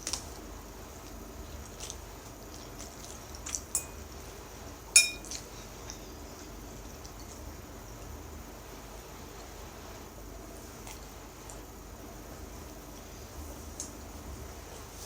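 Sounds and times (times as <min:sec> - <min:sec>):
utensil clinking against a bowl: 0:03.7 - 0:04.2, 0:05.0 - 0:05.4.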